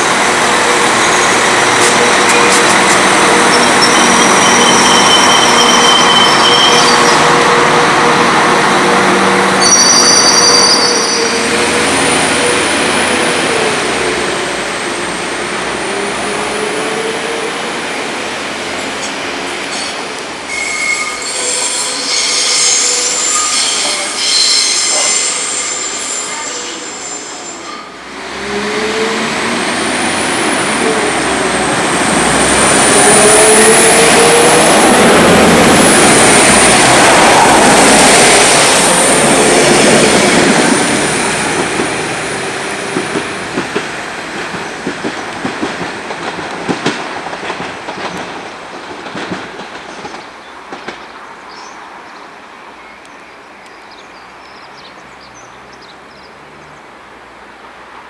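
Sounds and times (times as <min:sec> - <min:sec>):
wheels squealing on rails: 0:00.0 - 0:14.0, 0:18.8 - 0:43.6
train passing: 0:00.0 - 0:58.0
wheels clicking over rail joints: 0:42.7 - 0:51.1.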